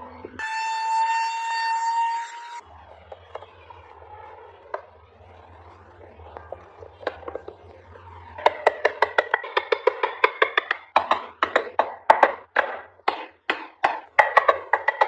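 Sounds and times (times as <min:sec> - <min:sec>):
sharp wooden taps: 0:08.4 - 0:15.0.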